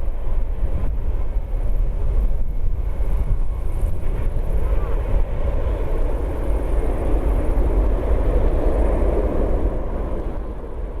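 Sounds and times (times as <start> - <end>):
jet engines passing: 3.4 - 11.0.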